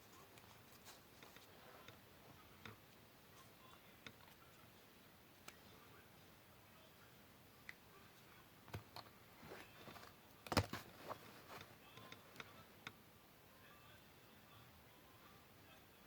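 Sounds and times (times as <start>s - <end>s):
paper rustling: 9.4s - 12.0s.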